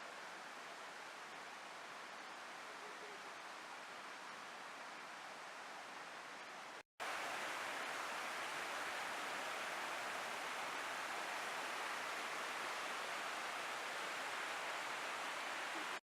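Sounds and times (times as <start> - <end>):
waterfall rushing: 7.0 - 16.0.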